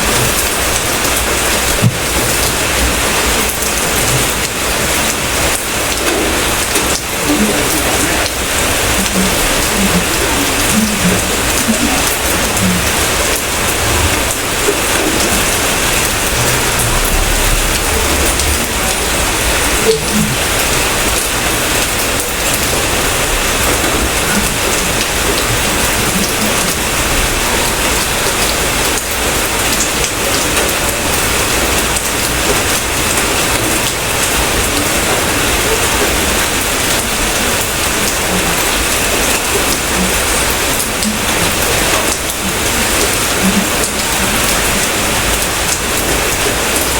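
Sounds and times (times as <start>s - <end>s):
heavy rain patter: 0.0s - 46.9s
low rumble: 5.9s - 28.5s.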